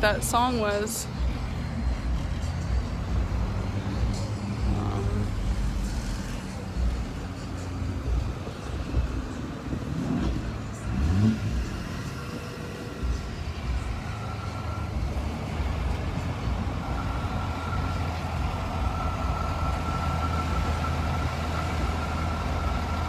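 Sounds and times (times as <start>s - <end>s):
cars and trucks passing: 0.0s - 23.0s
engine revving: 0.0s - 23.0s
thin steady whine: 10.7s - 23.0s.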